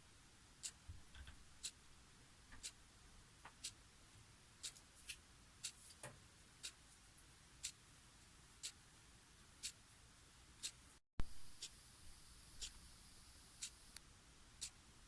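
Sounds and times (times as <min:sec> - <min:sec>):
clock ticking: 0:00.6 - 0:01.8, 0:02.5 - 0:02.8, 0:03.5 - 0:03.8, 0:06.6 - 0:06.8, 0:07.6 - 0:07.8, 0:08.6 - 0:08.8, 0:09.6 - 0:09.8, 0:11.6 - 0:11.8.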